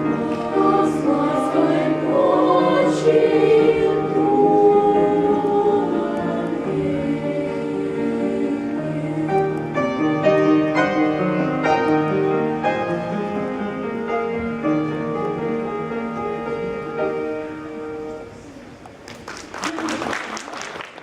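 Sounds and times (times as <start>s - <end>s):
solo piano playing: 0.0s - 5.9s, 7.9s - 18.4s.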